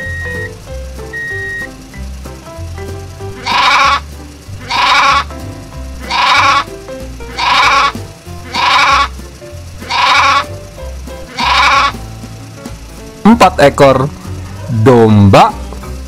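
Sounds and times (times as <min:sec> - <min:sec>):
background music with bass line: 0:00.0 - 0:16.0
sheep bleating: 0:03.4 - 0:04.0, 0:04.6 - 0:05.3, 0:06.0 - 0:06.7, 0:07.3 - 0:09.1, 0:09.8 - 0:10.5, 0:11.3 - 0:12.0.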